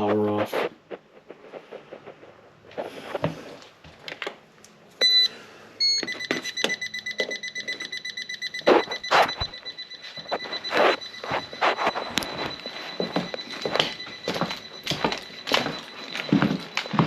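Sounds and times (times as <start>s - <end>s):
footsteps: 0.0s - 4.2s, 8.5s - 17.0s
electronic beeper beeping: 5.0s - 17.0s.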